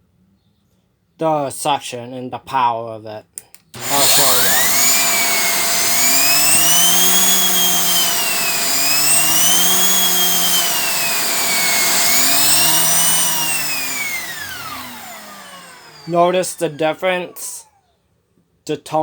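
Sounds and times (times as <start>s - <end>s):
vacuum cleaner motor whining: 3.8s - 17.7s.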